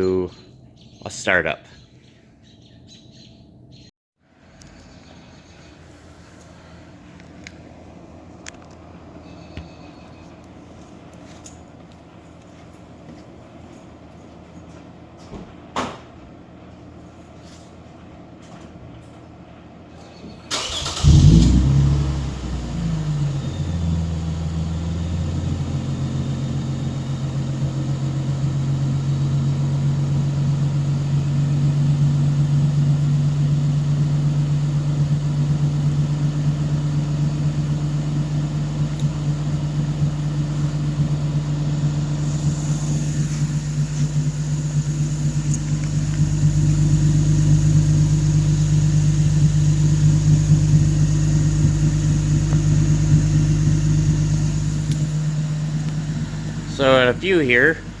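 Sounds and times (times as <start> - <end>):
engine cranking: 20.5 - 25.7, 33.9 - 58.0
car engine revving and idling: 20.6 - 58.0.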